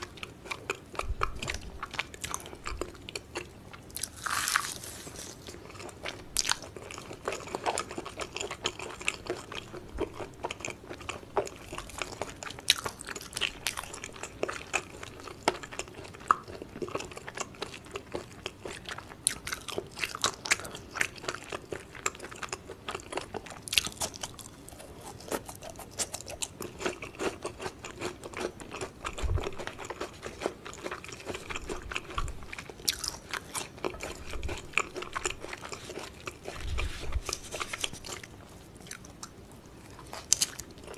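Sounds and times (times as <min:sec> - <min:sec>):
person chewing food: 0:00.0 - 0:40.9
crisp crunches: 0:04.0 - 0:05.9.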